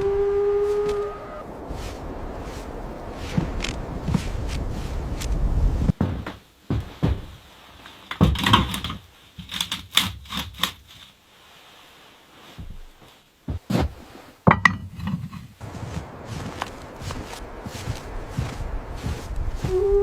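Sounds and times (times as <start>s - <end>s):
rustling: 0.6s - 20.0s
knocks and clatters: 5.9s - 10.9s, 13.5s - 15.6s.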